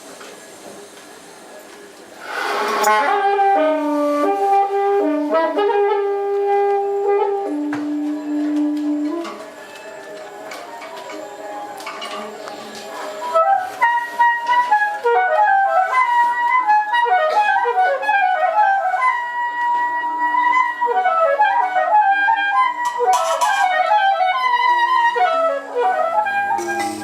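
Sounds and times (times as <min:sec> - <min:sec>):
low held tones: 0:26.2 - 0:27.0.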